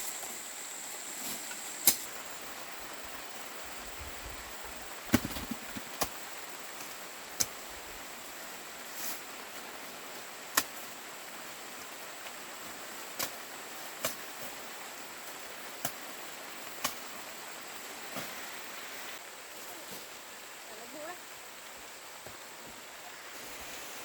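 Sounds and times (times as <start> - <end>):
steady outdoor hiss: 0.0 - 24.0
corn ears snapping off stalks: 1.3 - 2.2, 5.1 - 6.2, 10.5 - 10.8, 13.1 - 13.4, 14.0 - 14.6, 15.8 - 16.0, 16.7 - 17.1.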